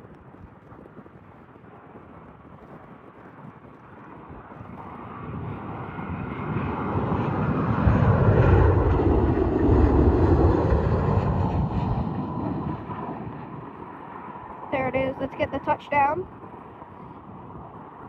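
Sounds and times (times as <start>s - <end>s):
jet engines roaring: 4.7s - 18.0s.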